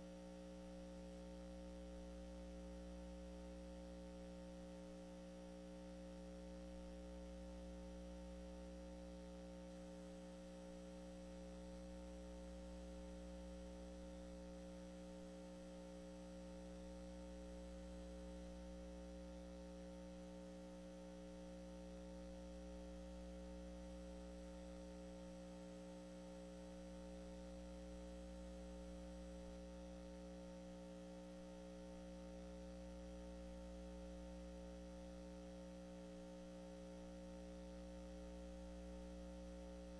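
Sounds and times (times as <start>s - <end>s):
faint electrical hum: 0.0s - 39.9s.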